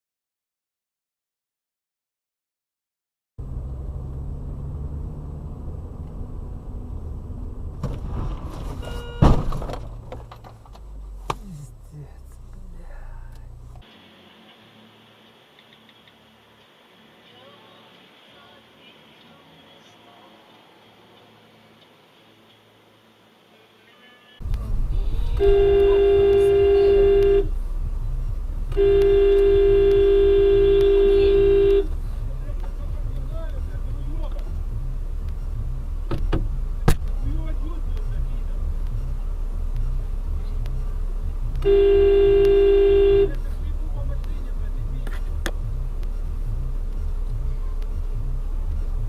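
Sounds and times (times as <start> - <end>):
vehicle and road noise: 3.4 - 49.0
vehicle horn blasts: 8.7 - 9.5, 25.2 - 27.6, 28.7 - 32.0, 41.6 - 43.4.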